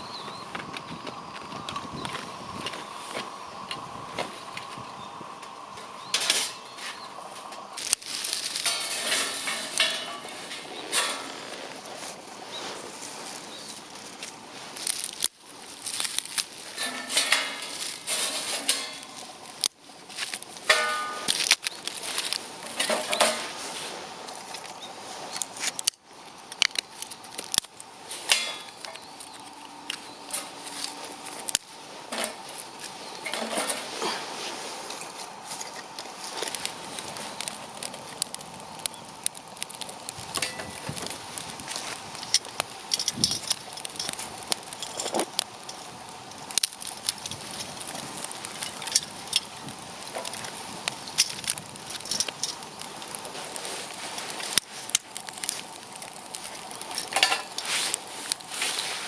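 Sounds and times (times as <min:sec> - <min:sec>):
rustling: 0:06.2 - 0:26.0, 0:46.5 - 0:59.0
metal pots clinking: 0:08.5 - 0:11.4, 0:16.7 - 0:19.2, 0:20.7 - 0:21.4, 0:28.3 - 0:29.0, 0:57.0 - 0:57.6.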